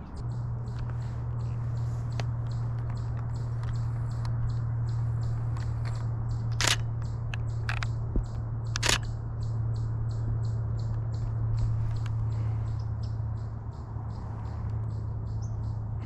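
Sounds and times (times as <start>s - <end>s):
faint regular ticking: 0.0s - 15.9s
steady low hum: 0.0s - 16.0s
camera shutter clicks: 6.5s - 6.9s, 8.7s - 9.1s.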